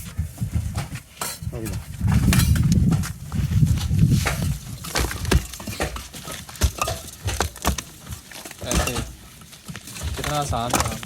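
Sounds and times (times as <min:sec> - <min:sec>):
sharp knocks and clatters: 0:00.0 - 0:11.0
low rumbling: 0:01.5 - 0:05.4
debris falling: 0:03.7 - 0:11.0.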